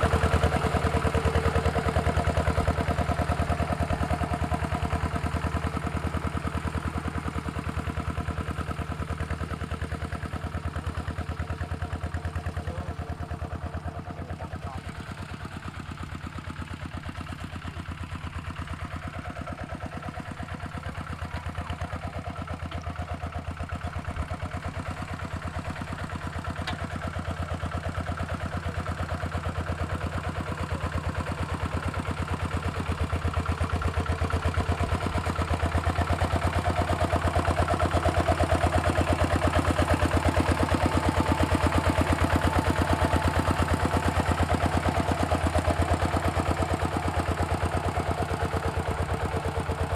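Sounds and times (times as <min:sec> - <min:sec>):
diesel engine chugging: 0:00.0 - 0:49.9.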